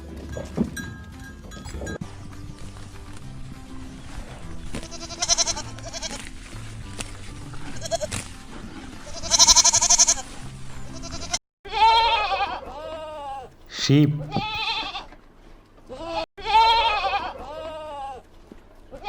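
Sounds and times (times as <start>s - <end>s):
goat bleating: 7.8s - 8.1s, 9.2s - 10.1s, 11.0s - 13.0s, 14.1s - 15.0s, 16.1s - 18.1s.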